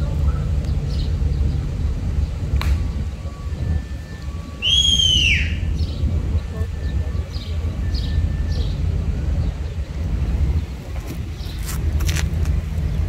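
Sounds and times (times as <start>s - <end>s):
wind rumble on microphone: 0.0s - 13.0s
high falling bird call: 4.6s - 6.0s.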